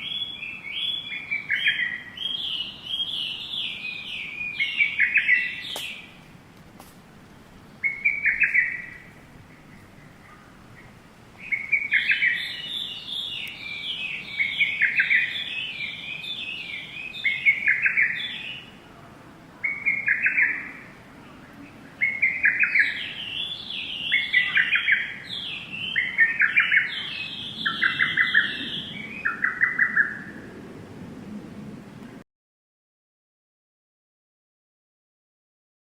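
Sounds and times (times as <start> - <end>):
bird chirping: 0.0 - 6.2, 7.6 - 18.8, 19.6 - 30.4.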